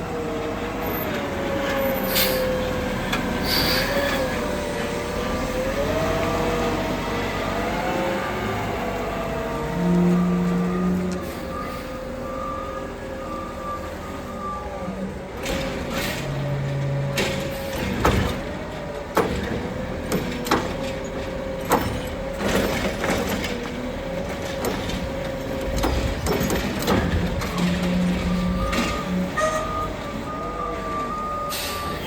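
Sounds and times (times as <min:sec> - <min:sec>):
garbage truck hydraulic whine: 0:01.1 - 0:06.6, 0:25.3 - 0:32.0.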